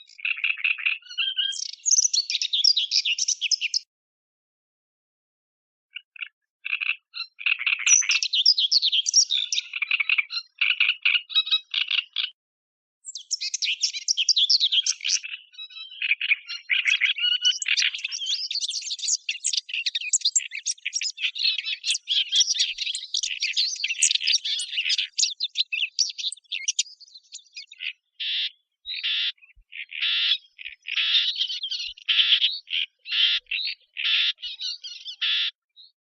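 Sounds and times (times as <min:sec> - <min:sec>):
warbler singing scratchy warble: 0:13.0 - 0:28.2.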